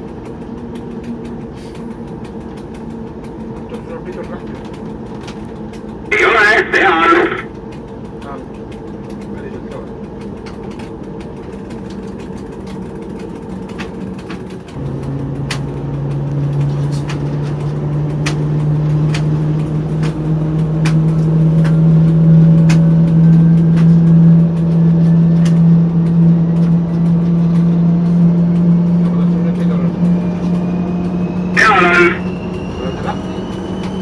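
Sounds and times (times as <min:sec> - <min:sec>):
diesel locomotive engine running: 0:00.0 - 0:34.0
turbocharger whistle: 0:30.2 - 0:34.0.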